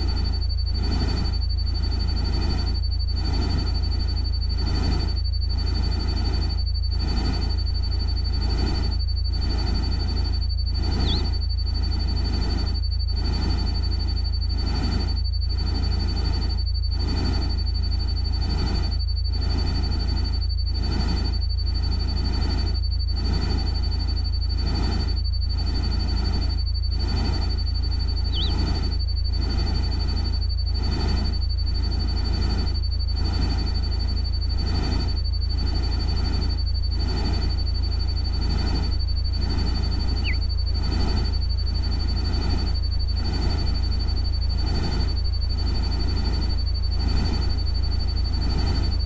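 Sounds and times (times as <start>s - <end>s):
deep constant rumble: 0.0s - 49.0s
thin steady high tone: 0.0s - 49.0s
short chirp: 11.0s - 11.4s, 28.3s - 28.7s, 40.2s - 40.4s.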